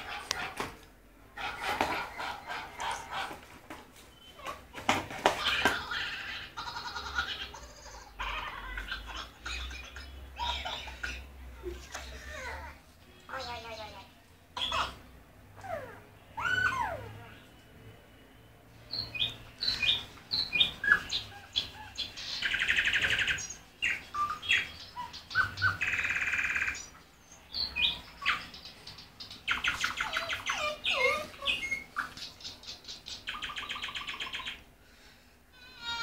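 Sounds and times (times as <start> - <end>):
recorded bird chirps from phone: 4.1 - 4.6, 16.4 - 34.6.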